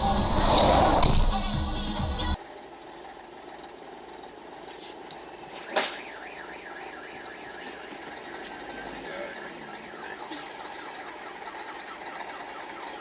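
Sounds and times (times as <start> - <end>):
road noise: 0.0 - 13.0
car alarm warbling: 5.5 - 13.0.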